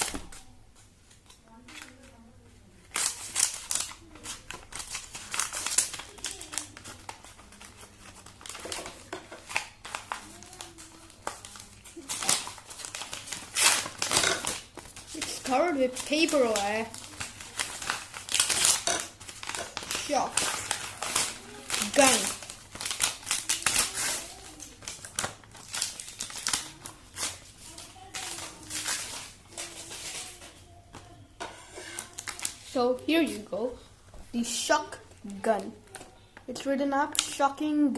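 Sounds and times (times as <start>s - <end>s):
paper wrapping rustling: 2.8s - 33.4s
packaging crinkling: 2.9s - 31.1s, 31.9s - 33.4s.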